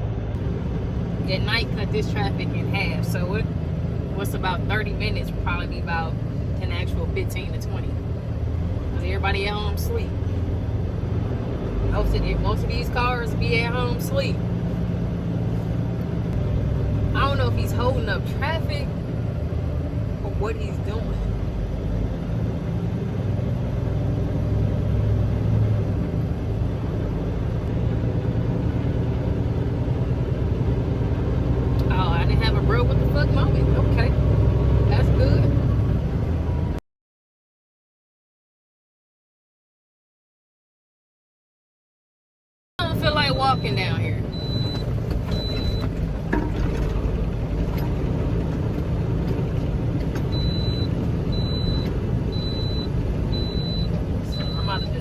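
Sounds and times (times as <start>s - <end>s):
diesel truck engine droning: 0.0s - 36.8s, 42.8s - 55.0s
electronic warning beeps: 43.3s - 46.0s, 50.3s - 55.0s.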